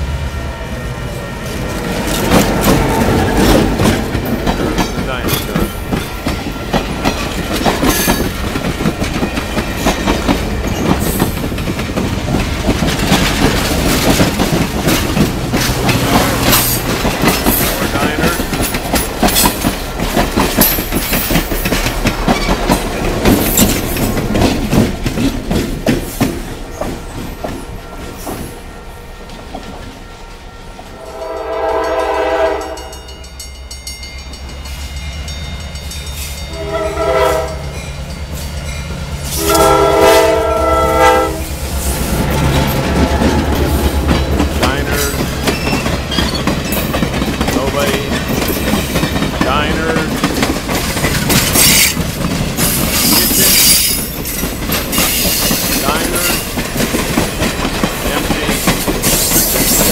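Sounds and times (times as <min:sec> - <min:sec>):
train wheels clattering: 0:01.4 - 0:30.0, 0:30.8 - 0:59.9
locomotive air horn: 0:30.1 - 0:33.0, 0:36.5 - 0:37.6, 0:39.3 - 0:44.7.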